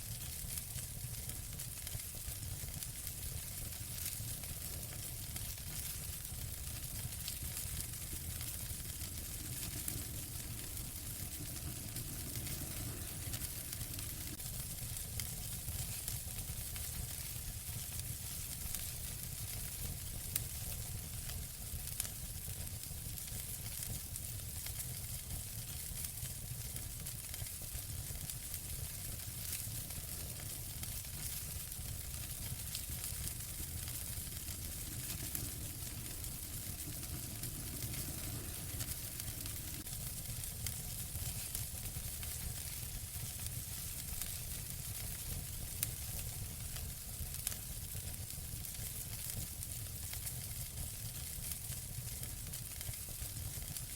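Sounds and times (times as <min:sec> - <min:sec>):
fire crackling and popping: 0:00.0 - 0:53.9
fire hiss and low rumble: 0:00.0 - 0:53.9.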